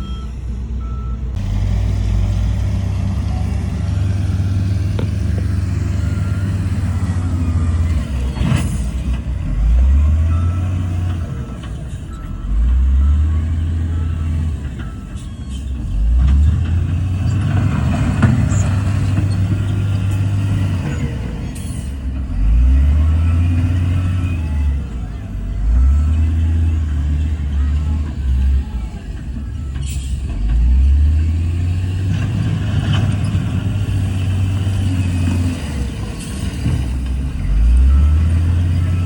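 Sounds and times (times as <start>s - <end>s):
heavy diesel engines revving: 0.0s - 39.0s.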